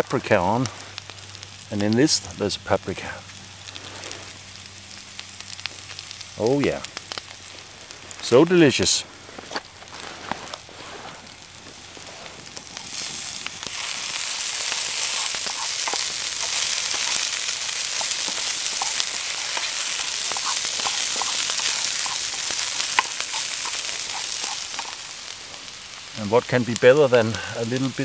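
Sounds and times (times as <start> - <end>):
food sizzling in a pan: 0.0 - 28.0
wooden spatula clicks: 14.7 - 25.1.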